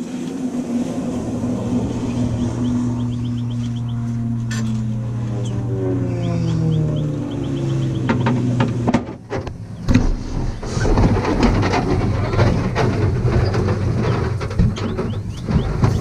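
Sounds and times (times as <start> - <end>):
vehicle engine: 0.0 - 16.0
vehicle travel rumble: 0.0 - 16.0
sharp knocks: 7.9 - 16.0.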